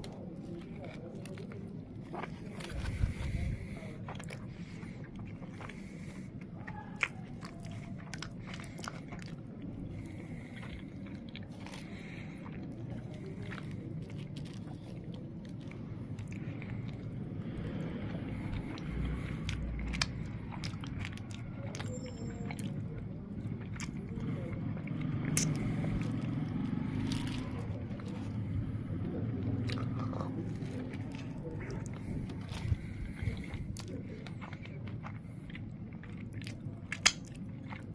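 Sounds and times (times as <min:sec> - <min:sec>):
close-up chewing: 0:00.0 - 0:37.9
low background rumble: 0:00.0 - 0:37.9
mouth clicks: 0:23.8 - 0:27.8, 0:36.4 - 0:37.4.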